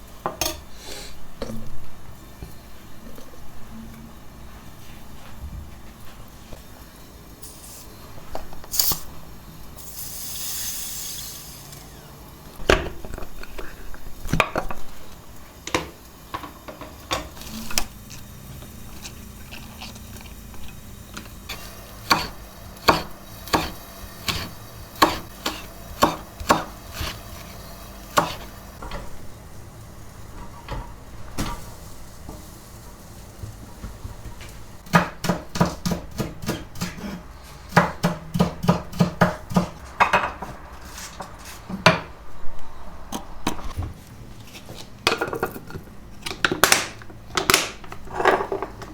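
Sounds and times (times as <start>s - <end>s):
utensils and dishes clinking: 44.6s - 48.9s.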